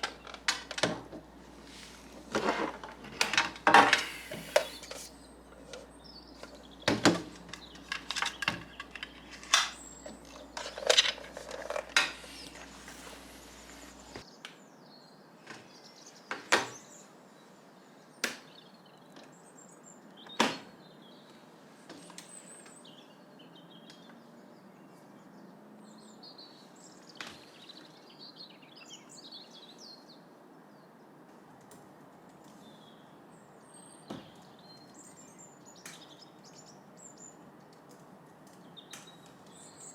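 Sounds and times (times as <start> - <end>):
small birds chirping: 3.3 - 31.2, 32.3 - 39.9
clacks of hard objects handled: 6.4 - 12.7.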